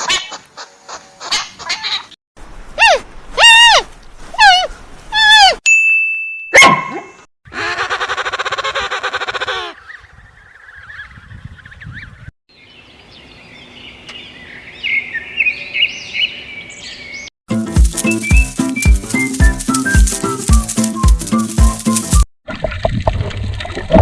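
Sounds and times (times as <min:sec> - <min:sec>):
bird chirping: 0:09.8 - 0:17.3.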